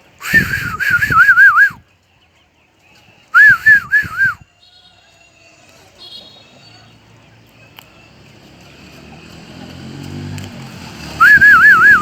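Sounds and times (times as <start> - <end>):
songbird warbling whistles: 0.2 - 1.8, 3.3 - 4.5, 11.2 - 12.0.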